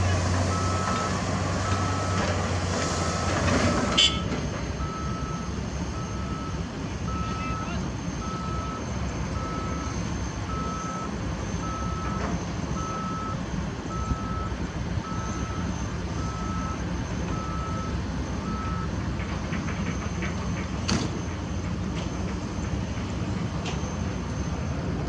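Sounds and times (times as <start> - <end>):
diesel engines rumbling: 0.0 - 25.0
backup alarm beeping: 0.5 - 2.4, 3.0 - 19.0.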